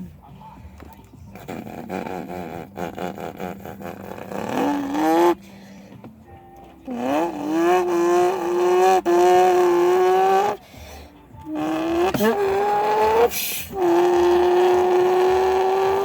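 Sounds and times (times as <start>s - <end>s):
person imitating car engine: 1.3s - 5.6s, 6.8s - 10.7s, 11.4s - 16.0s.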